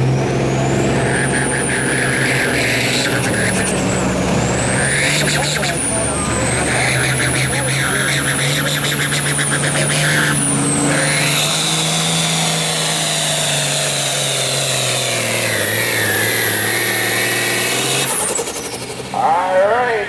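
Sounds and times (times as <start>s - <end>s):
diesel engine under load: 0.0s - 20.0s.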